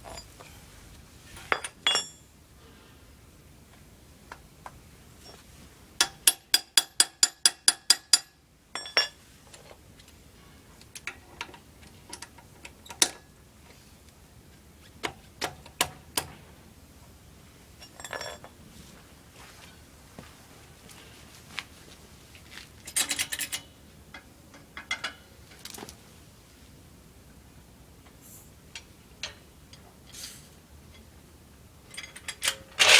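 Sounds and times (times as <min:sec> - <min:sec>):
metal tool clinks: 0:01.4 - 0:02.3.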